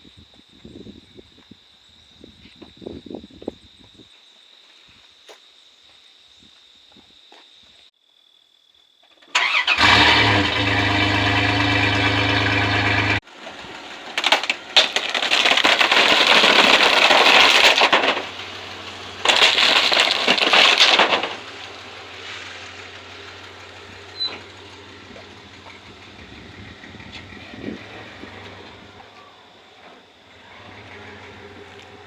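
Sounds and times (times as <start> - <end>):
truck rumble: 9.4 - 32.0
sharp cracks: 14.1 - 21.7
crunching noise: 14.2 - 21.6.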